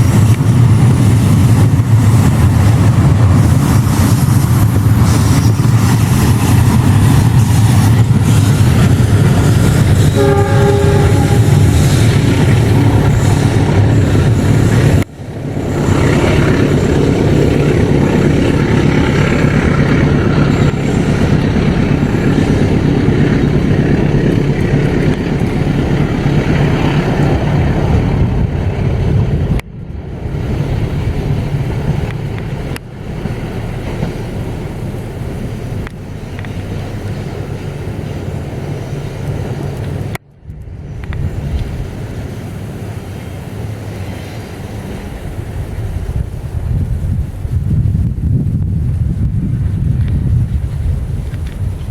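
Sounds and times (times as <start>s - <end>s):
diesel locomotive engine drone: 0.0s - 51.9s
train noise: 0.0s - 51.9s.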